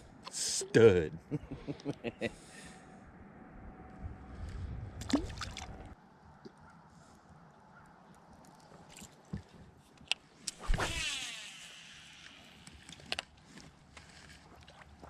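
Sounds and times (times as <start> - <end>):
fishing reel spool whirring: 10.6 - 13.1.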